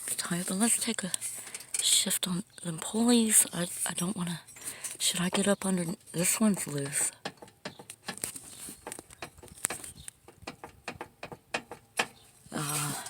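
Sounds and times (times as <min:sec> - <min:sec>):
metal pulleys clicking and knocking: 0:06.2 - 0:12.2.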